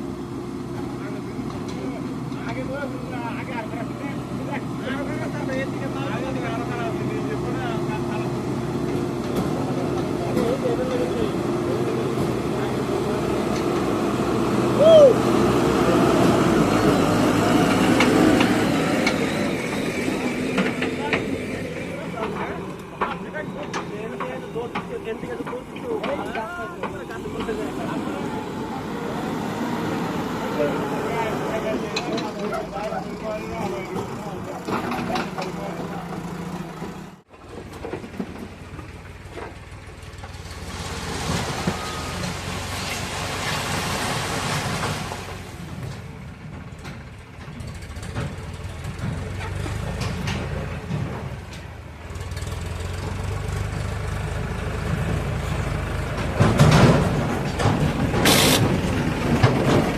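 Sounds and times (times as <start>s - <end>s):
diesel engine of farm machinery: 0.0s - 59.9s
sharp clicks or knocks: 57.7s - 58.8s
loud rushing hiss: 58.2s - 59.0s.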